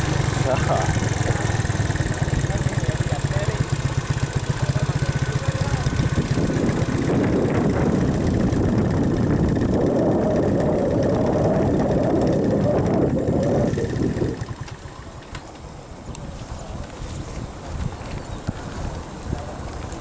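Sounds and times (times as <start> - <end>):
vehicle engine running: 0.0 - 15.3.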